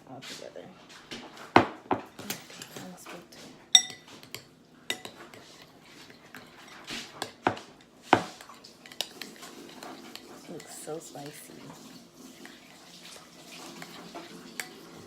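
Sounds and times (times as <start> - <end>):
utensils and dishes clinking: 1.6 - 15.0.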